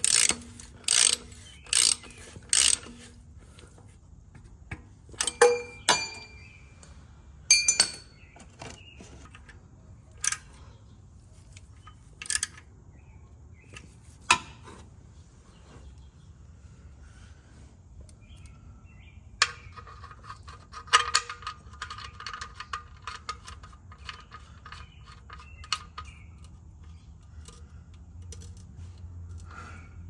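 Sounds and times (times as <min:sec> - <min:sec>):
ratchet stroke: 0:00.0 - 0:03.8
metallic clinks of hand tools: 0:05.2 - 0:06.5, 0:07.5 - 0:08.2.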